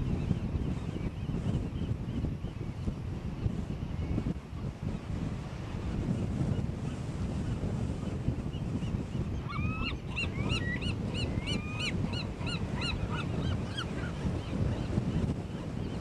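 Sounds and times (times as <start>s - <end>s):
wind rumble on microphone: 0.0s - 16.0s
birds calling: 8.6s - 14.9s.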